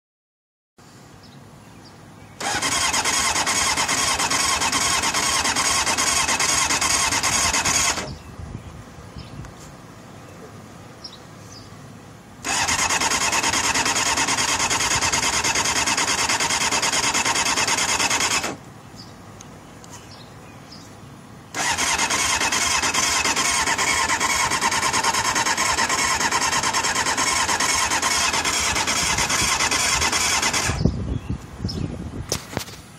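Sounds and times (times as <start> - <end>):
starter motor cranking engine: 2.4 - 8.1, 12.4 - 18.6, 21.5 - 30.9.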